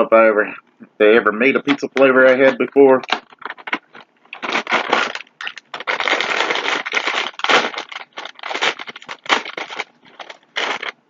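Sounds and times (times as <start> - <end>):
crackers crunched and chewed: 3.0 - 11.0.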